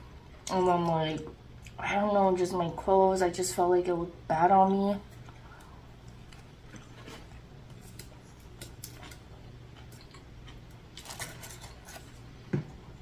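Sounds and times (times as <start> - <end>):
steady low hum: 0.0 - 13.0
soft chewing: 5.0 - 13.0.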